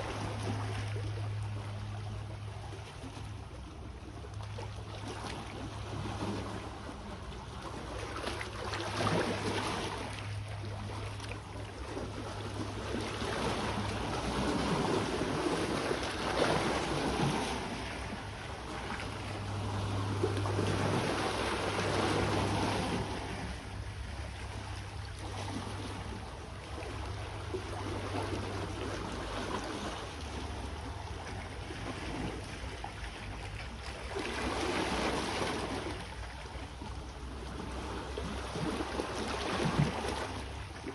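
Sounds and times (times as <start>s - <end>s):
steady low hum: 0.0s - 40.9s
sea waves washing onto shore: 4.9s - 36.7s.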